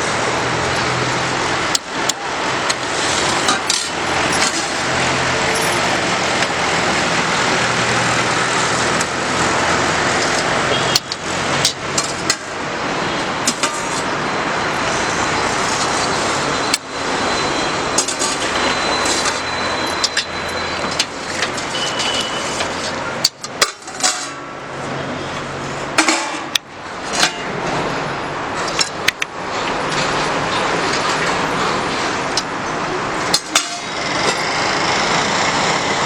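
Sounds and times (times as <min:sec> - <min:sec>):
road traffic noise: 0:00.0 - 0:36.0
sharp clinks and knocks: 0:00.3 - 0:06.0.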